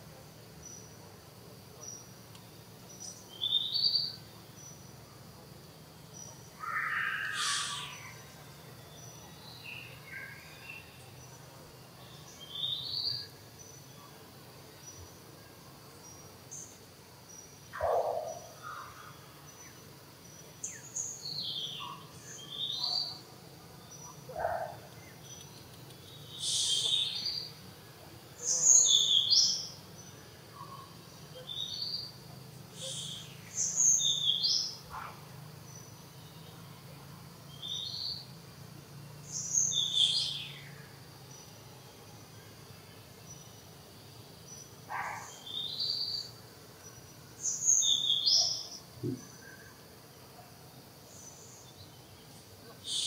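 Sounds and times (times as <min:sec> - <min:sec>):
faint insect drone: 0:00.0 - 0:53.0
birds chirping: 0:05.6 - 0:15.2, 0:15.9 - 0:38.4, 0:39.1 - 0:53.0
lower bird calls: 0:06.5 - 0:11.0, 0:24.0 - 0:27.6, 0:32.7 - 0:35.2, 0:39.3 - 0:40.8, 0:52.7 - 0:53.0.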